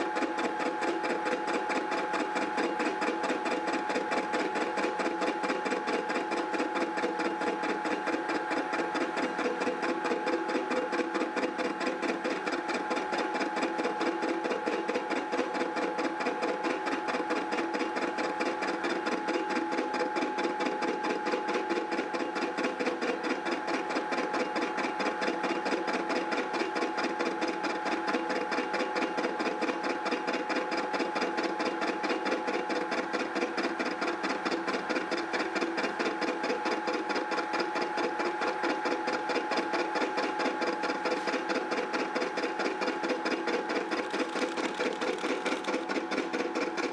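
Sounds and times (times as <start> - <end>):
milling cutter cutting iron: 33.4 - 46.9.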